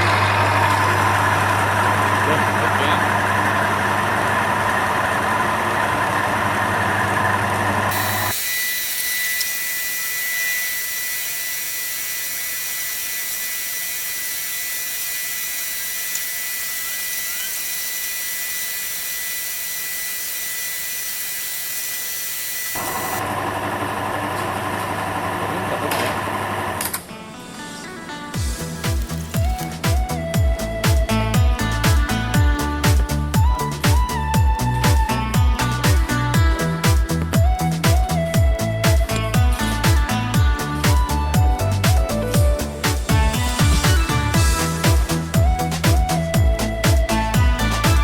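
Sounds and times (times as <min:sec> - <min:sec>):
test machine humming: 0:00.0 - 0:26.8
high hiss with whistle: 0:07.9 - 0:19.5.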